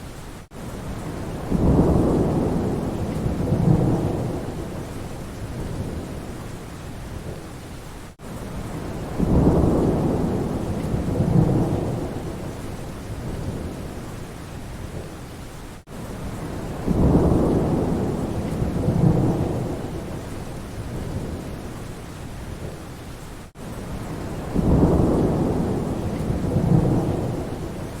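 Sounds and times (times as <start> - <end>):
rain falling in forest: 0.0 - 28.0
thunder rumbling: 0.9 - 6.4, 8.6 - 14.0, 16.3 - 21.7, 23.9 - 28.0.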